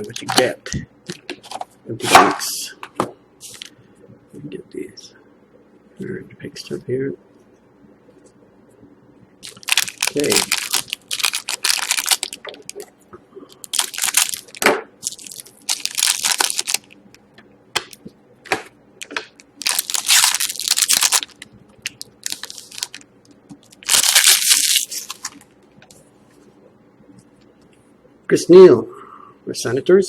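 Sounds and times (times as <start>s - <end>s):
card pack wrapping crinkling and tearing: 9.4s - 12.8s, 13.6s - 17.0s, 19.6s - 25.4s.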